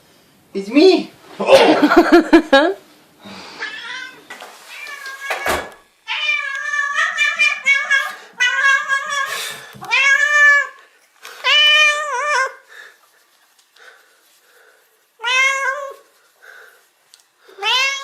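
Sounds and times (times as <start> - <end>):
cat meowing: 3.6 - 10.8, 15.2 - 16.0, 17.6 - 18.0.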